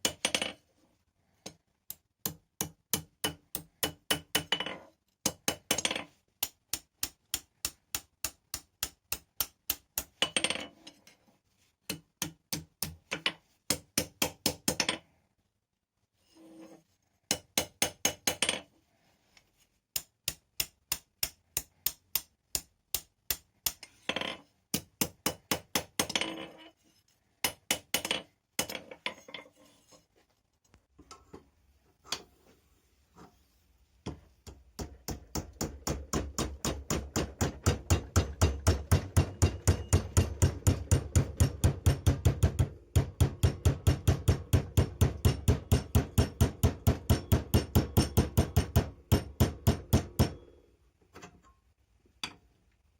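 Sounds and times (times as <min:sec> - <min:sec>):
hammer ringing on steel: 0:37.9 - 0:41.7.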